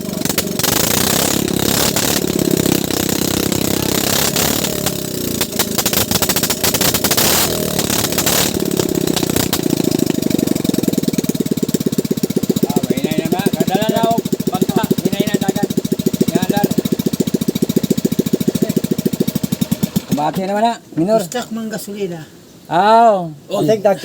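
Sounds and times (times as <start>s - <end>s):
small boat engine clattering: 0.0s - 20.5s.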